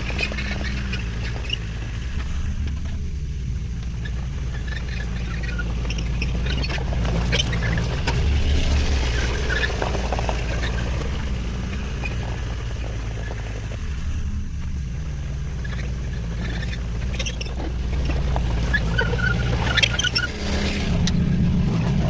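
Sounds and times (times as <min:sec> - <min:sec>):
high squeaks: 0:00.0 - 0:01.7, 0:03.9 - 0:08.2, 0:09.0 - 0:12.4, 0:15.6 - 0:20.9
excavator engine running: 0:00.0 - 0:22.0
scraping clatter: 0:03.8 - 0:22.0.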